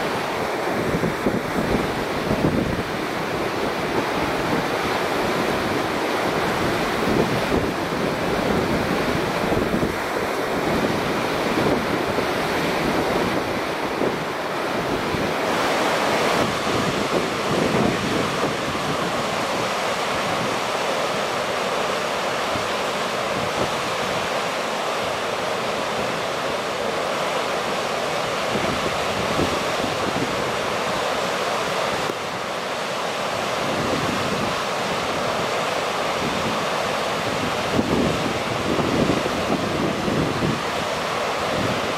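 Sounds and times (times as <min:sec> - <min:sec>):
wind buffeting microphone: 0:00.0 - 0:20.7, 0:36.2 - 0:41.9
flooded river rushing: 0:00.0 - 0:41.9.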